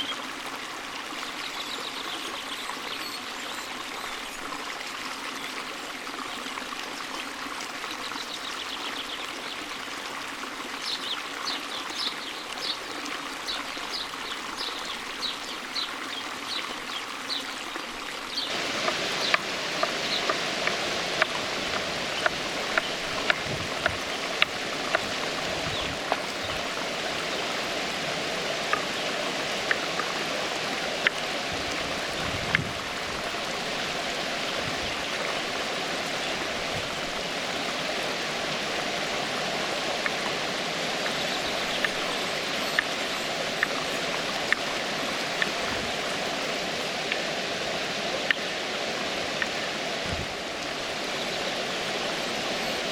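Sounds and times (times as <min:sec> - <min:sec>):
creek water flowing: 0:00.0 - 0:52.9.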